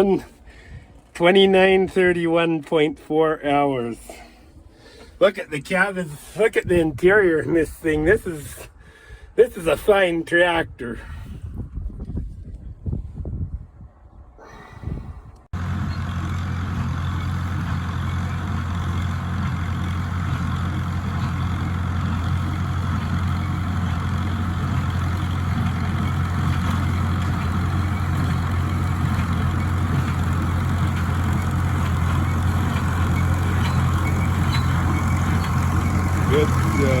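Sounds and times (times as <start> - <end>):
large engine humming steadily: 14.5 - 37.0.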